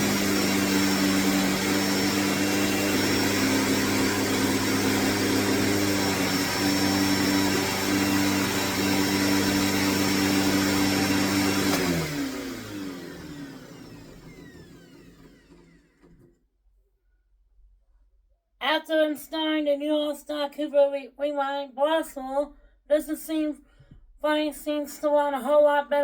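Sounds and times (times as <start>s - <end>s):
vacuum cleaner motor running: 0.0s - 16.4s.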